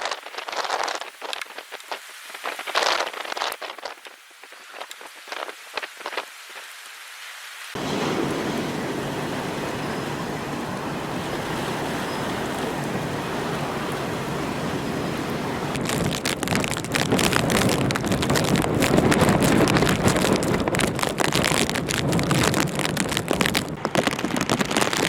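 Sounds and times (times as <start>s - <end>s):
raindrops pattering: 0.0s - 6.9s, 7.8s - 25.0s
wind rushing: 7.8s - 24.6s.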